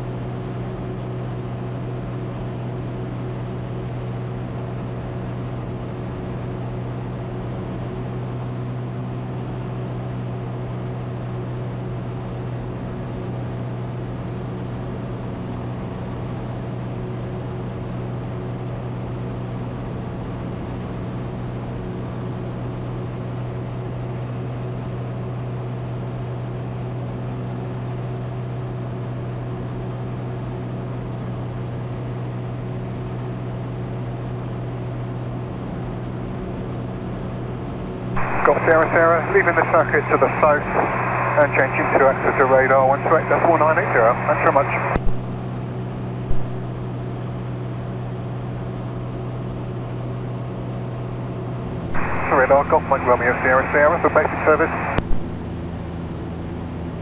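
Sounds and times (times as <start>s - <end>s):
light aircraft engine droning: 38.1s - 57.0s.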